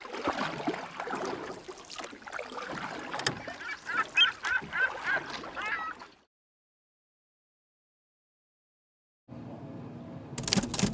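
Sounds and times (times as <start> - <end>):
sharp click: 10.4 - 10.9.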